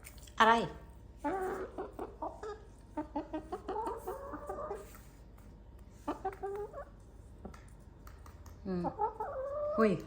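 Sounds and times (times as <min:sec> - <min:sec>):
hens clucking: 0:01.2 - 0:05.1, 0:06.0 - 0:07.5, 0:08.8 - 0:10.0.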